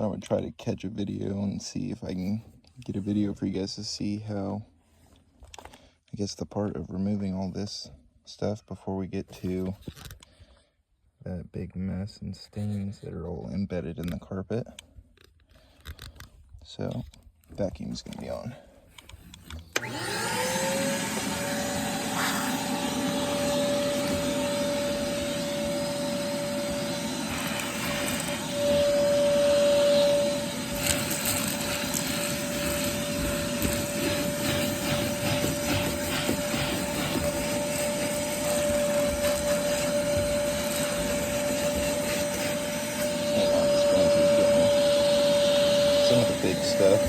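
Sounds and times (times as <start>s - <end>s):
vacuum cleaner running: 19.4s - 47.0s.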